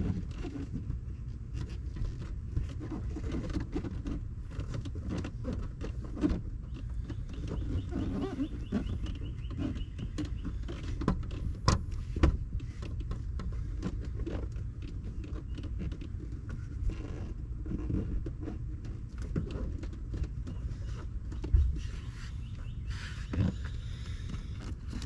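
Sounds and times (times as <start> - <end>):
rubber gasket rubbing and scraping: 0.0 - 25.0.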